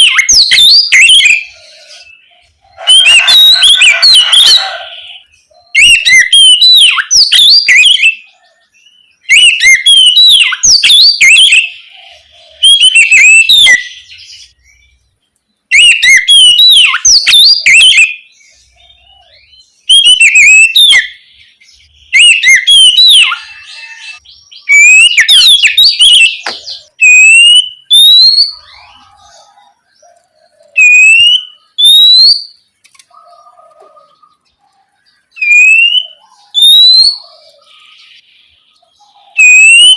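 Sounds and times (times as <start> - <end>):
bird singing whistled notes: 0.0 - 15.1, 15.7 - 32.6, 33.2 - 39.9
bird rising whistles: 30.8 - 32.6, 35.4 - 37.3, 39.4 - 39.9.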